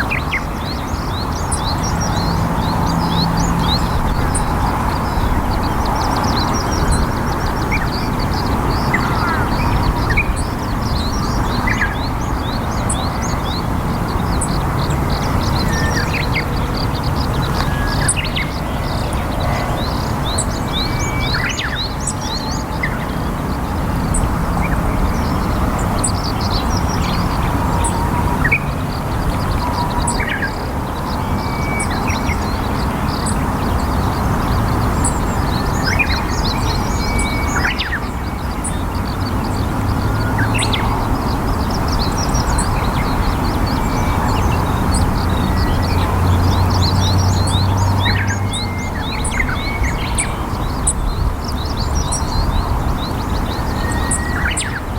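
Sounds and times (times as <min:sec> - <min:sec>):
small birds chirping: 0:00.0 - 0:54.9
steady loud rushing noise: 0:00.0 - 0:54.9.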